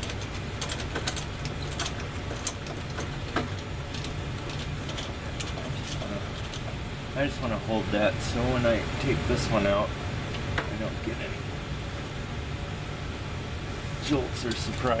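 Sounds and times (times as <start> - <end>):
clicks and taps on metal parts: 0.0 - 6.8
low mechanical hum: 0.0 - 15.0.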